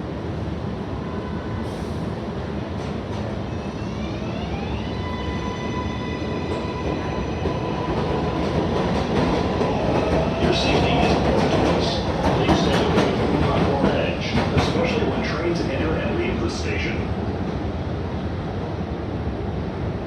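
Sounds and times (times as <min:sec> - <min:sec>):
train wheels rumbling on rails: 0:05.4 - 0:18.8.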